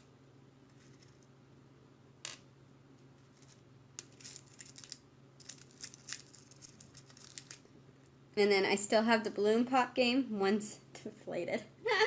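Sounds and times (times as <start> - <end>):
faint steady hum: 0.0 - 12.0
small hard objects clicking: 4.0 - 7.6.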